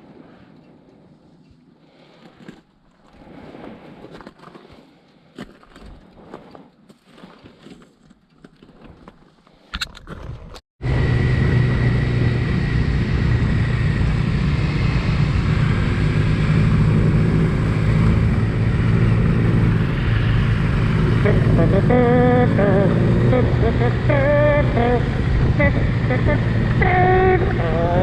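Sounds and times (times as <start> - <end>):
wind noise: 9.7 - 28.0
motorcycle engine drone: 10.8 - 28.0.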